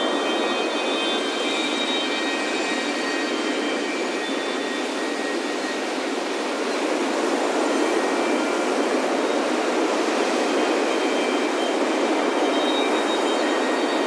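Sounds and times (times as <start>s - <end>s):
ocean surf on a beach: 4.8s - 14.0s.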